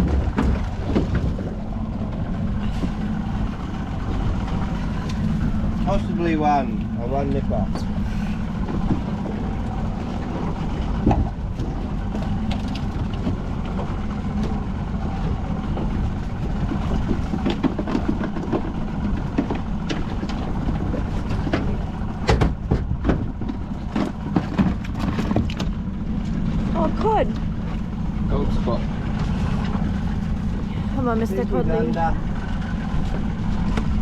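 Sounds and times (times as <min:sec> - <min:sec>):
knocks and clatter: 0:00.0 - 0:02.3, 0:15.7 - 0:26.4
boat engine idling: 0:00.0 - 0:34.0.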